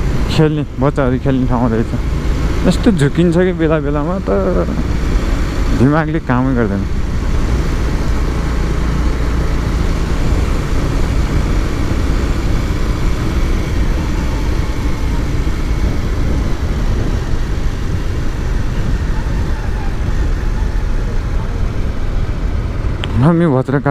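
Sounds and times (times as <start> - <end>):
motorcycle road and wind noise: 0.0 - 23.9.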